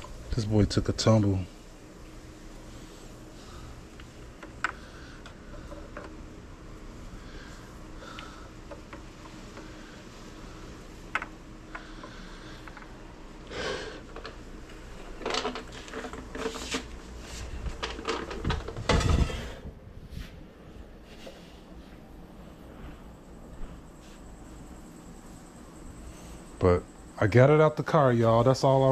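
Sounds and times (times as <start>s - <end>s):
hard objects knocking and rattling: 15.0s - 16.9s, 17.6s - 19.4s.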